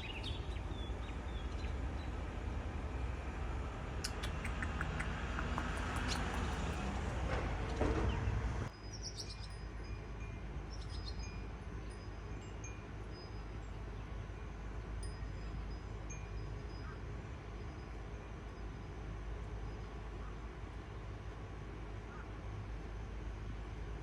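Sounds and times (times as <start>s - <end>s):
high bird chirps: 4.0s - 7.0s.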